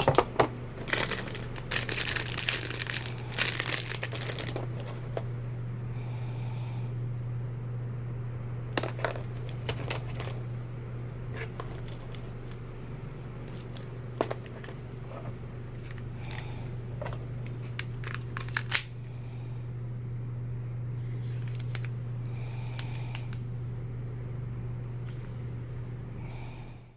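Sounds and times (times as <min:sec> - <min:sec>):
steady low hum: 0:00.0 - 0:26.9
clicks and knocks of handled items: 0:08.8 - 0:10.4.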